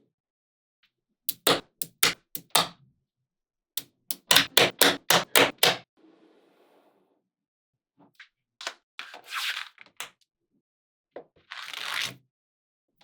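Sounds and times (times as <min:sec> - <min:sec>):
magnetic balls clicking together: 0:01.3 - 0:02.7, 0:04.1 - 0:05.8.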